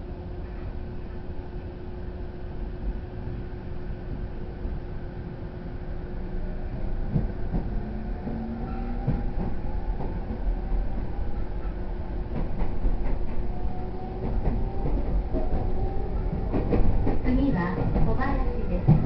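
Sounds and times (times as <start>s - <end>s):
train rumble: 0.0s - 19.0s
rail-joint clicks: 7.1s - 19.0s.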